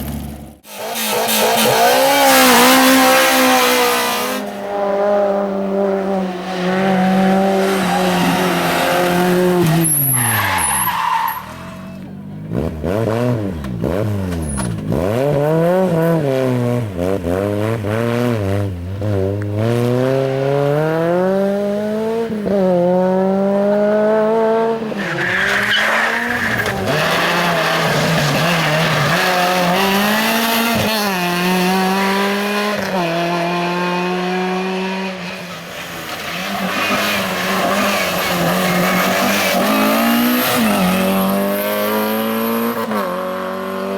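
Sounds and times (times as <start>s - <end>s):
car engines revving hard: 0.0s - 43.9s
tyre squeal: 6.4s - 12.0s, 25.0s - 30.2s, 34.9s - 41.3s.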